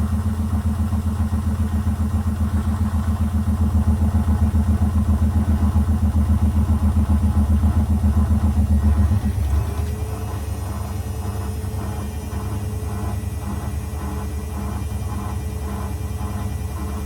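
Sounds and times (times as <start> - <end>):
washing machine spinning: 0.0 - 17.0.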